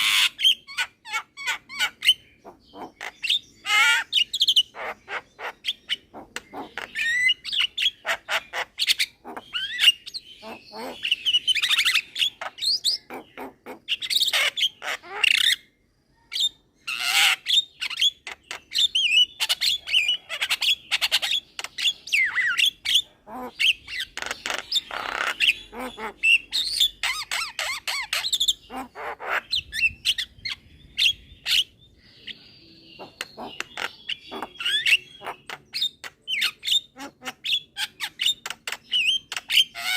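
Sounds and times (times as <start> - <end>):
myna squawking and whistling: 33.0 - 39.9.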